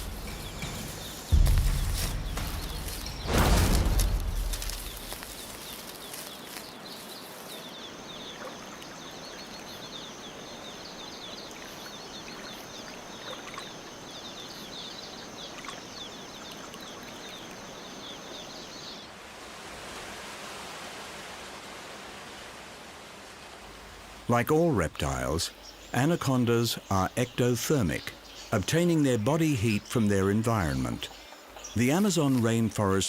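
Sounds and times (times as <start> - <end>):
hiss like running water: 0.0 - 24.3.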